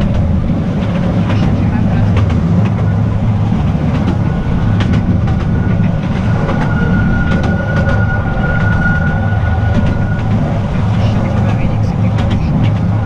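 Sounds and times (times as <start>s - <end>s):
train wheels rumbling on rails: 0.0s - 13.0s
thin high squeal: 6.2s - 11.1s.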